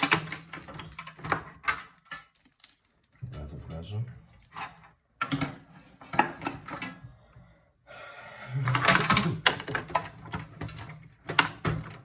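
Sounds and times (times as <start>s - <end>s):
computer case parts clicking and knocking: 0.0s - 2.8s, 4.5s - 7.1s, 8.7s - 12.0s
metal and plastic pieces clattering: 0.0s - 3.1s, 8.7s - 12.0s.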